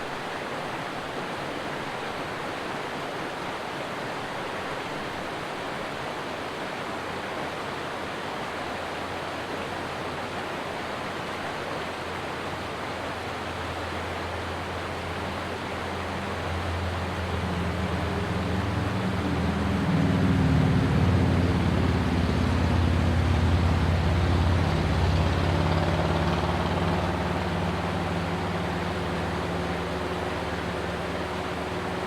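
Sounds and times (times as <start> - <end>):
stream rushing: 0.0 - 32.0
passing engine hum: 9.0 - 32.0.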